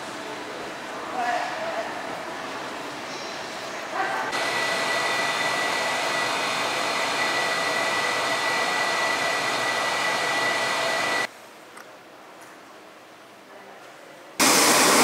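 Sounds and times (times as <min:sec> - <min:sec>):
high steady whine: 0:04.3 - 0:11.3, 0:14.4 - 0:15.0
whooshing blower noise: 0:04.3 - 0:11.3, 0:14.4 - 0:15.0.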